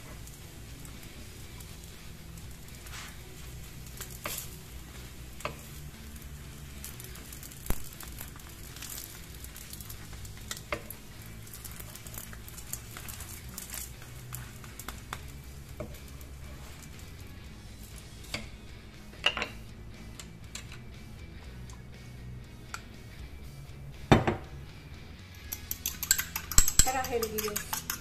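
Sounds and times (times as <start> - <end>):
pancake sizzling in oil: 0.0 - 18.6
spatula and fork scraping pan: 25.5 - 28.0.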